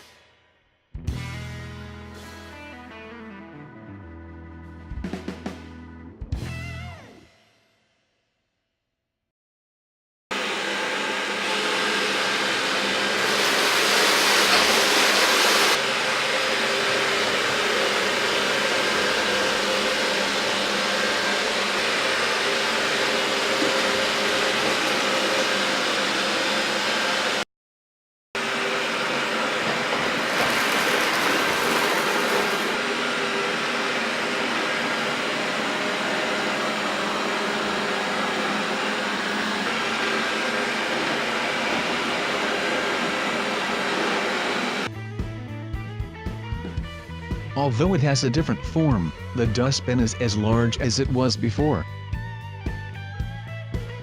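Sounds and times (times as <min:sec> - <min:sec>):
robot vacuum whirring: 0:11.2 - 0:15.8, 0:29.0 - 0:44.9.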